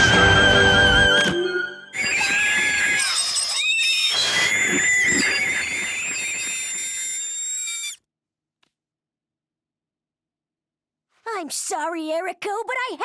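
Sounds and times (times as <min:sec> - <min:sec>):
high-pitched cartoon shriek: 0:00.0 - 0:08.0.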